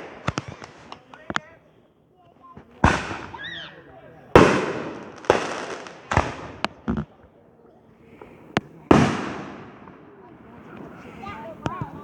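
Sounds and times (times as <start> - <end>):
fireworks bangs and cracks: 0.0 - 1.6, 2.5 - 7.4, 8.2 - 12.0.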